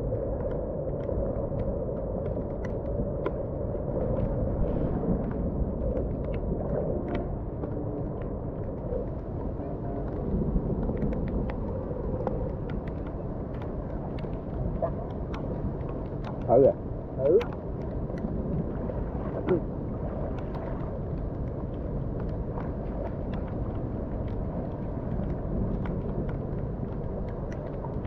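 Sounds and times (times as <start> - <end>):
light rain ticks: 0.0 - 28.0
rain rumbling: 0.0 - 28.0.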